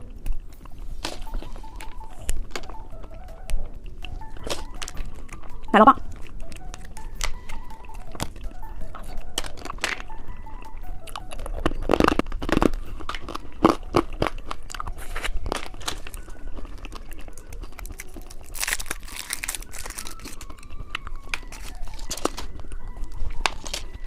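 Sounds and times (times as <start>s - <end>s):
crunching and chewing candy: 0.0s - 24.0s
packaging crinkling: 11.2s - 24.0s.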